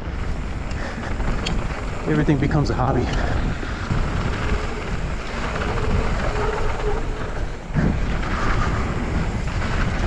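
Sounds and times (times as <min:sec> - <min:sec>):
bike tyres rolling on dirt: 0:00.0 - 0:10.0
wind rushing over microphone: 0:00.0 - 0:10.0.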